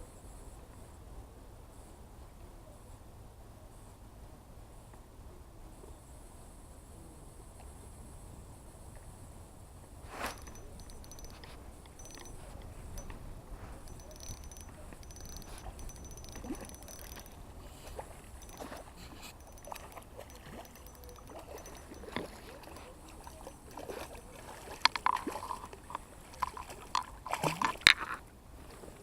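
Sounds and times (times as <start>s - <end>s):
clicks and knocks: 10.3s - 13.2s, 13.8s - 17.4s, 18.4s - 24.2s
water splashing and sloshing: 15.6s - 28.2s.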